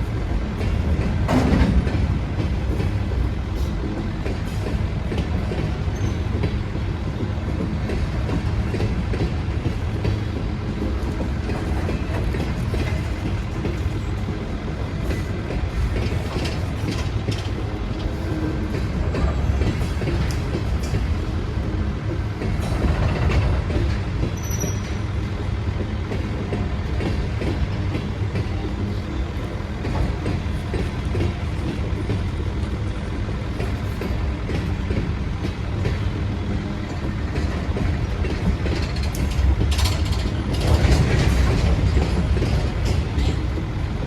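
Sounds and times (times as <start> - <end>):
train rumbling: 0.0 - 44.0
wheels clicking over rail joints: 0.4 - 6.6, 7.2 - 21.3, 36.8 - 43.8.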